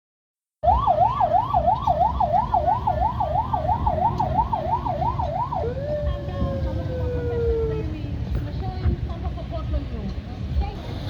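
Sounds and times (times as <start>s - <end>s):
police siren: 0.6s - 8.0s.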